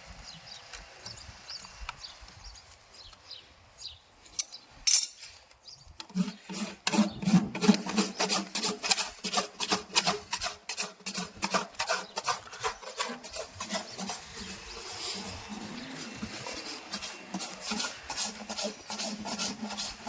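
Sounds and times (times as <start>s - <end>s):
rasp filing a hoof: 6.0s - 20.0s.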